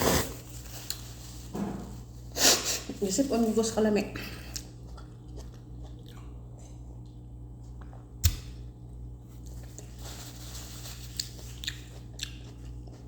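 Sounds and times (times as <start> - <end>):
person chewing: 4.4 - 8.2, 10.8 - 13.0.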